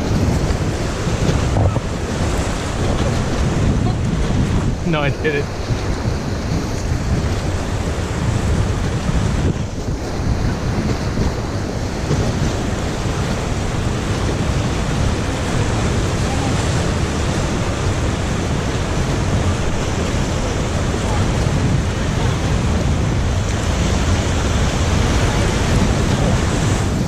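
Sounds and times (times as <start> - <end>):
river water rushing: 0.0 - 27.0
wind noise on microphone: 0.0 - 27.0.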